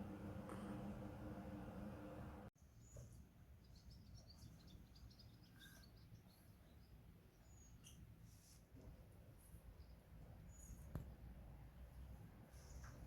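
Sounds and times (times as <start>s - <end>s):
low background rumble: 0.0s - 2.5s
small birds chirping: 2.8s - 8.1s, 9.7s - 11.0s.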